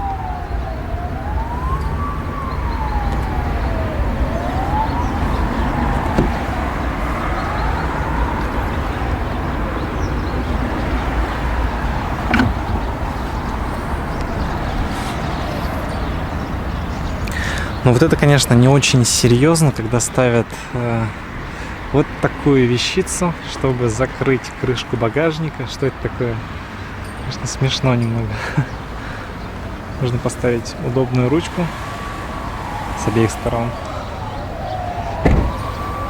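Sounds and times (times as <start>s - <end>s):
emergency siren wailing: 0.0s - 18.4s, 27.7s - 36.0s.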